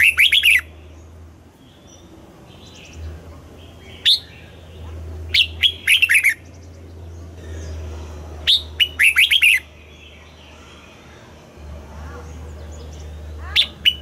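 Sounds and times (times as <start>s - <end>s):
bird singing whistled notes: 0.0s - 0.7s, 3.7s - 4.6s, 5.3s - 6.8s, 8.5s - 10.9s, 12.9s - 14.0s.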